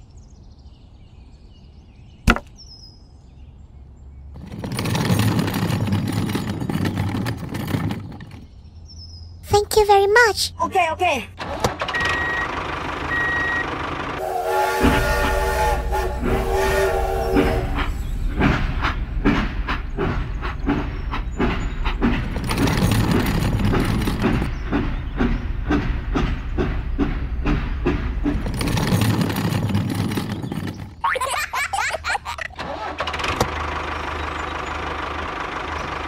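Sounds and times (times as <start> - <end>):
train wheels clacking over rail joints: 4.4 - 8.6, 14.0 - 31.2
low rumble of passing train: 12.6 - 36.0
train horn: 14.2 - 18.2.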